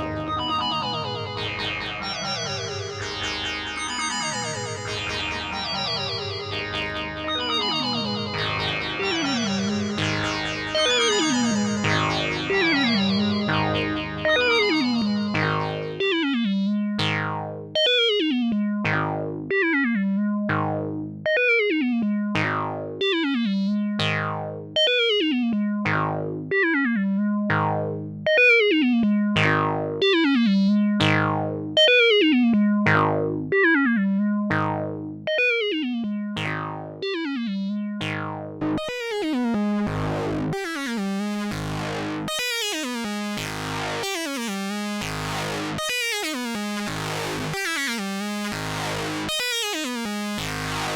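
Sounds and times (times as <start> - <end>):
synthesizer low note with filter sweep: 4.8 - 17.7, 36.3 - 50.9.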